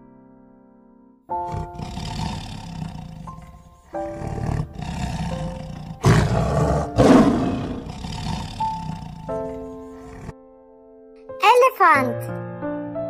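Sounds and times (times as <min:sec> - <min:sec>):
soft piano music: 0:00.0 - 0:01.8, 0:09.3 - 0:13.0
tiger roaring: 0:01.3 - 0:10.3
tiger growling: 0:01.3 - 0:10.4.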